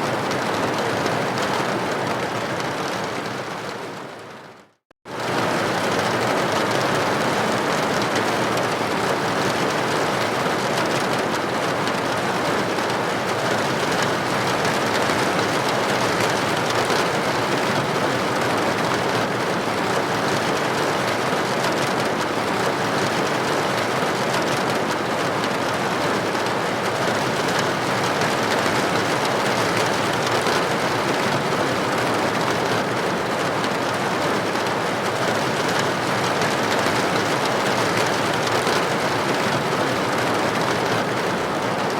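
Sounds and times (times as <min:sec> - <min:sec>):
rain hitting a window: 0:00.0 - 0:41.9.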